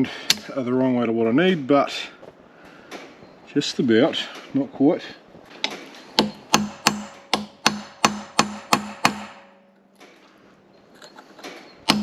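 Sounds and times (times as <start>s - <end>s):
hammer striking steel shaft: 6.2s - 9.7s.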